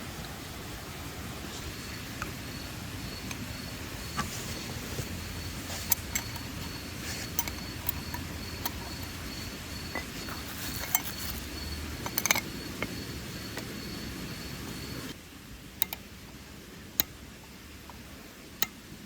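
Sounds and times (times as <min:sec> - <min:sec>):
crickets trilling: 0:01.6 - 0:15.2
light clicks and clinks: 0:01.7 - 0:13.7.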